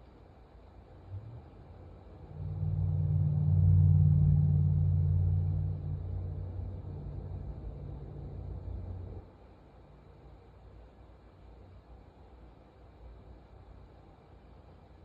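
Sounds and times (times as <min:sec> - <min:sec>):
vehicle engine rumble: 0:00.8 - 0:09.3.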